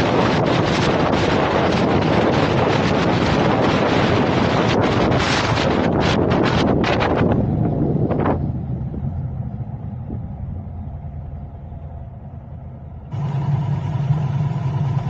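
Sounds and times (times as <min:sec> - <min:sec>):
wind noise on microphone: 0:00.0 - 0:10.9
car rumble: 0:00.0 - 0:15.0
steady hum: 0:00.0 - 0:15.0.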